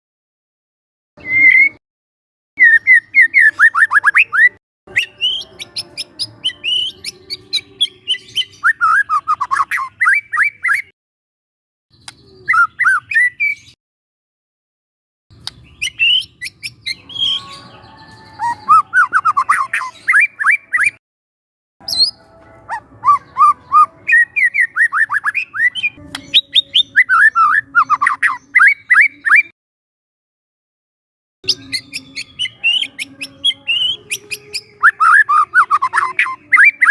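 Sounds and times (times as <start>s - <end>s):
bird sharp chirps: 1.2s - 1.8s, 2.6s - 10.9s, 11.9s - 13.8s, 15.3s - 21.0s, 21.8s - 29.5s, 31.4s - 36.9s
bird whistling song: 1.2s - 1.8s, 2.6s - 10.9s, 11.9s - 13.8s, 15.4s - 21.0s, 21.8s - 29.5s, 31.5s - 36.9s.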